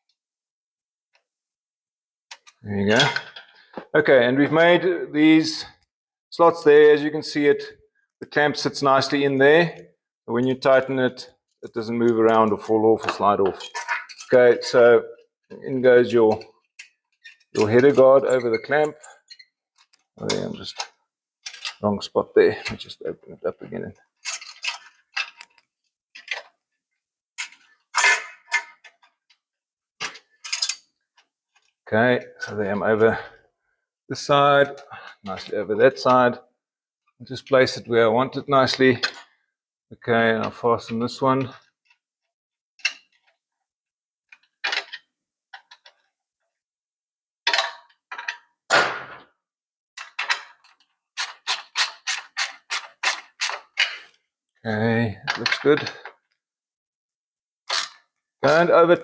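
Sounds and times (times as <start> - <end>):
hand tool tightening hose clamp: 17.2 - 19.4, 50.7 - 54.0, 57.7 - 58.6
short metallic scrapes: 27.5 - 28.8.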